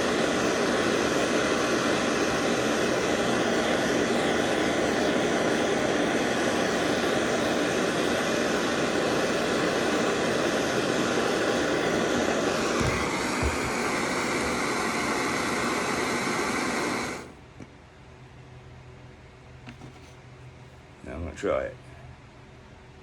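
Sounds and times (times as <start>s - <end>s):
gas torch hissing: 0.0s - 17.4s.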